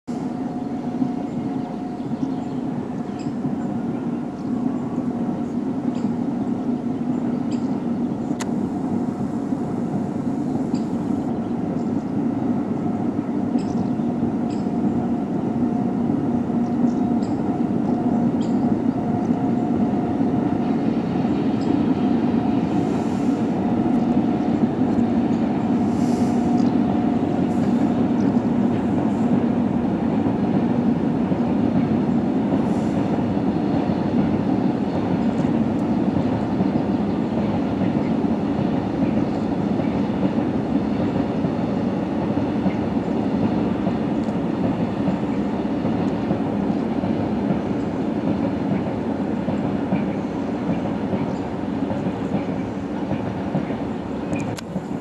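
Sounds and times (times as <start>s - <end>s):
train rumbling with humming tone: 0.0s - 55.0s.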